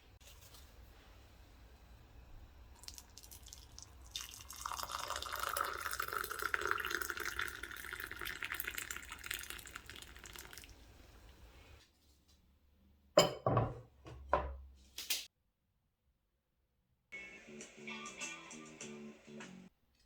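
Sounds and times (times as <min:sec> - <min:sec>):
water running into container: 0:02.7 - 0:10.9.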